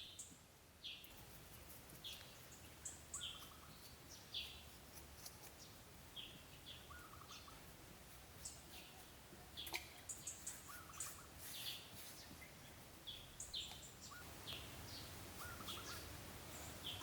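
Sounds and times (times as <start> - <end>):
bird chirps: 2.0 - 7.7, 8.4 - 17.0
low rattling bird trill: 13.2 - 16.2.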